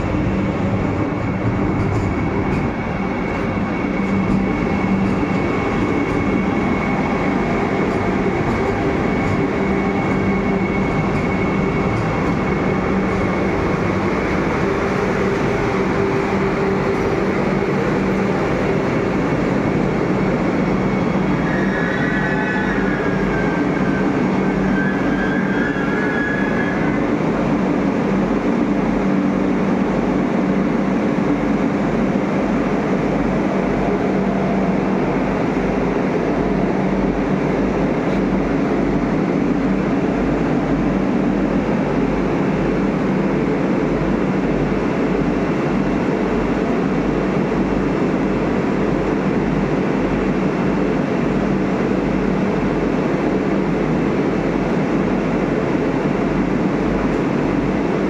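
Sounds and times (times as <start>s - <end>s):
electric train humming and rumbling: 0.0s - 58.0s
high squeal: 20.4s - 27.2s.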